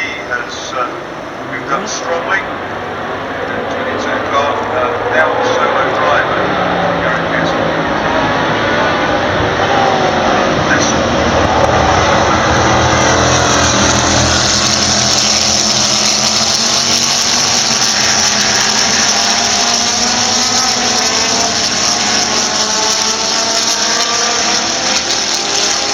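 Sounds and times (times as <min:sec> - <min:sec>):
racing cars at full throttle: 0:00.0 - 0:25.9.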